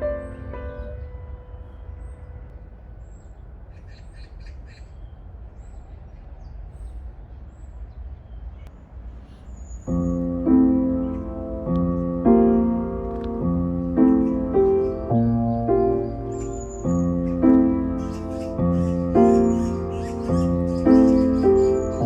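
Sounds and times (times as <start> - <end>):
piano music: 0.0 - 3.0, 9.9 - 22.0
birds chirping: 0.0 - 22.0
harsh bird calls: 0.0 - 22.0.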